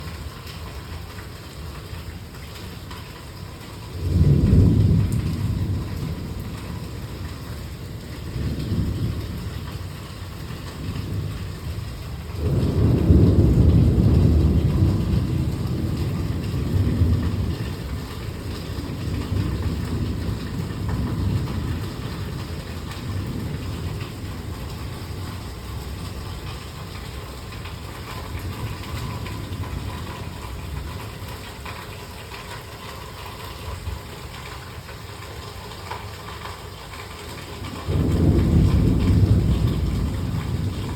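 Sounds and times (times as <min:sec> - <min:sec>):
rain hissing: 0:00.0 - 0:40.9
thunder rolling: 0:04.0 - 0:31.8, 0:37.4 - 0:40.9.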